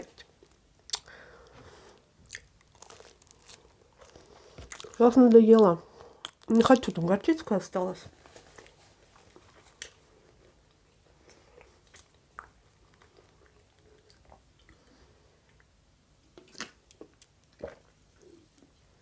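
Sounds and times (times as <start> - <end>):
chewing and mouth clicks: 2.3 - 6.8, 10.7 - 14.9, 16.3 - 17.9.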